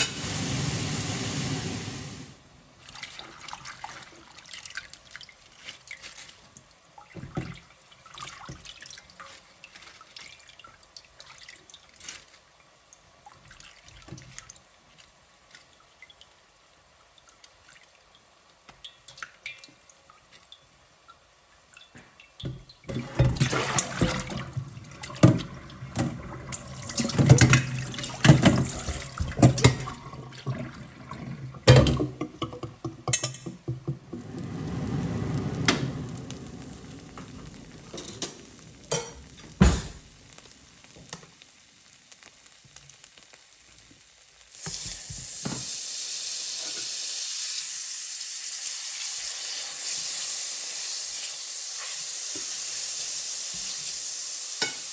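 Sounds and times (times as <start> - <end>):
running water splashing: 23.2 - 31.2, 34.0 - 45.6
small kitchen clicks: 31.7 - 34.1, 37.9 - 40.1.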